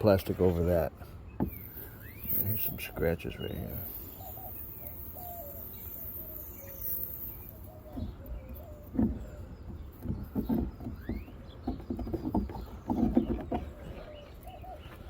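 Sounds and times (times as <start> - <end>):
faint bird calling: 1.0 - 15.0.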